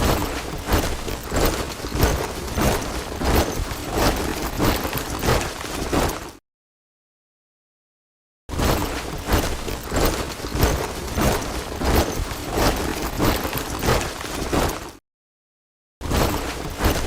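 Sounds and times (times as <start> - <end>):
boots marching on hard ground: 0.0 - 6.3, 8.7 - 14.9.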